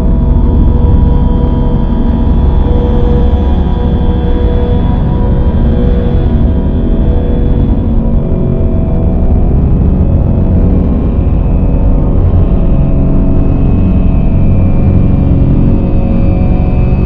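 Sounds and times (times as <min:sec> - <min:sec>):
dark ambient drone music: 0:00.0 - 0:17.0.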